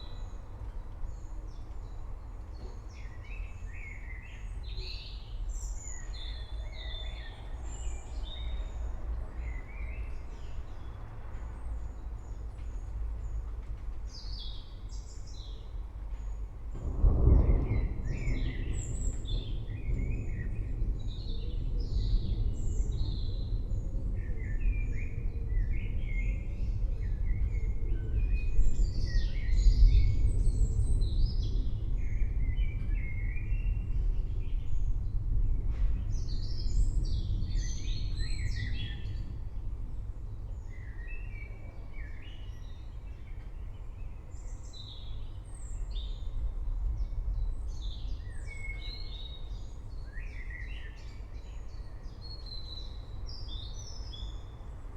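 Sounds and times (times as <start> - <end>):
distant thunder rumbling: 15.8 - 43.5.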